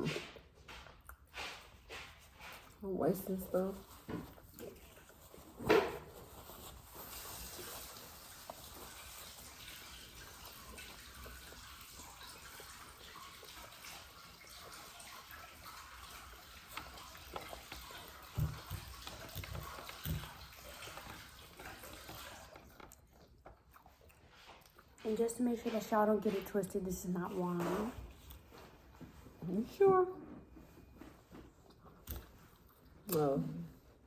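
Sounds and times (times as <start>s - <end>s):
running liquid hissing: 1.3s - 22.6s.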